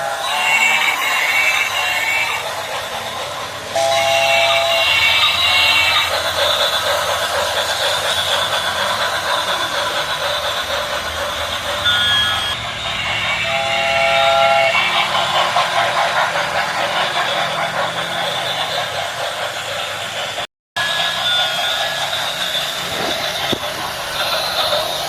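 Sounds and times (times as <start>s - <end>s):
train whistle: 0.0s - 2.4s, 3.7s - 6.1s, 11.8s - 15.4s
steam train rumbling: 0.0s - 25.0s.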